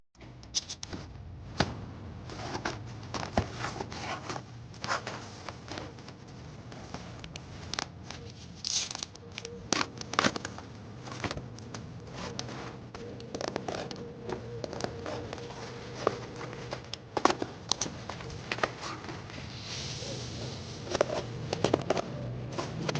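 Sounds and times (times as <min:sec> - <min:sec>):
scraping rustle: 0:02.2 - 0:22.9
packaging clicks and taps: 0:07.2 - 0:18.8, 0:20.9 - 0:22.9.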